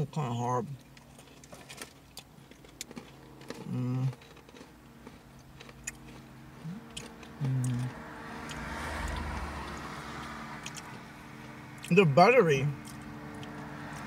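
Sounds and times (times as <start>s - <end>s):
chewing crunchy cookies: 0.7s - 12.0s, 12.8s - 14.0s
person humming: 3.7s - 4.1s, 7.4s - 8.0s.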